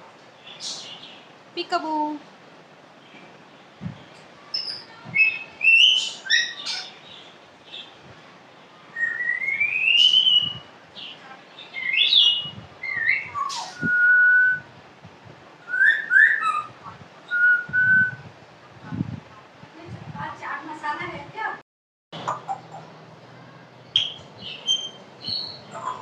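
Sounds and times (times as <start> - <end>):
parrot whistling and chirping: 4.6 - 7.0, 9.0 - 10.6, 11.9 - 14.6, 15.7 - 18.2, 24.0 - 25.6.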